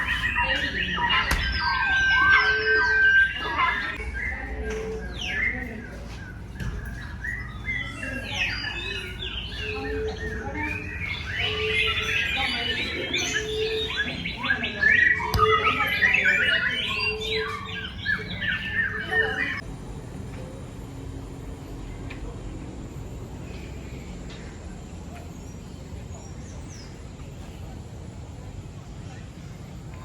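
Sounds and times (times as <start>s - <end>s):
birds chirping and whistling: 0.0s - 19.6s.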